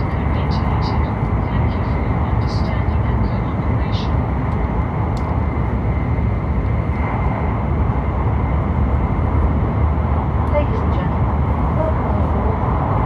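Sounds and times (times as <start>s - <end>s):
high-speed train rumble: 0.0s - 13.0s.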